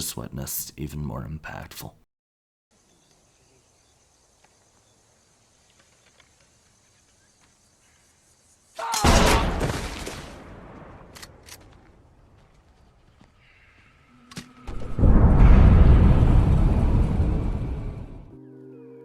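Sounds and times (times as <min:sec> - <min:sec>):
faint insect drone: 0:02.7 - 0:08.9
loud shotgun blast: 0:09.0 - 0:11.1.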